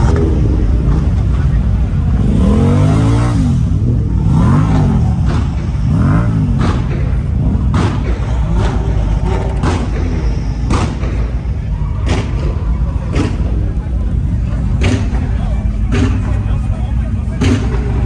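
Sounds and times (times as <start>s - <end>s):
car engines revving: 0.0s - 18.0s
low rumble of running engines: 0.0s - 18.0s
sharp cracks: 6.6s - 11.4s.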